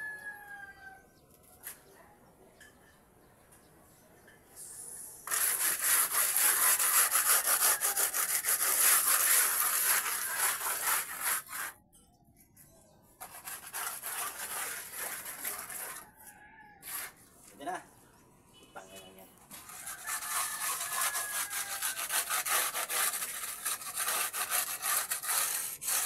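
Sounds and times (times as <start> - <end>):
plastering tool rubbing render: 5.2 - 11.8, 13.2 - 16.1, 16.8 - 17.3, 19.5 - 26.0.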